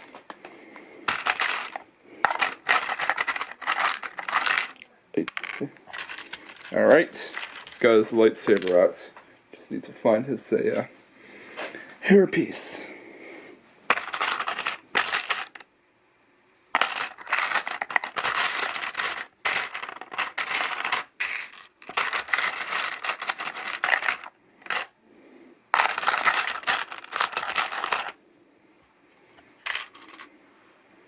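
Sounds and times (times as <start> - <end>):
plastic pieces clattering: 1.1 - 7.8, 8.4 - 8.9, 13.9 - 15.6, 16.7 - 25.0, 25.7 - 28.2, 29.6 - 30.3.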